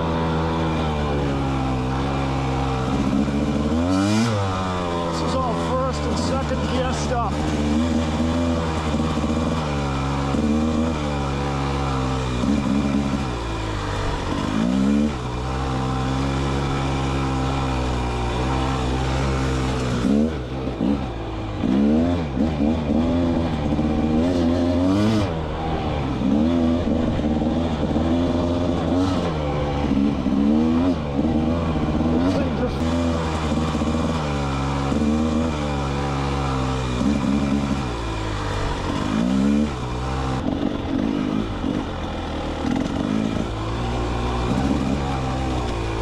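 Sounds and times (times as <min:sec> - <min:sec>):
two-stroke engine revving: 0:00.0 - 0:46.0.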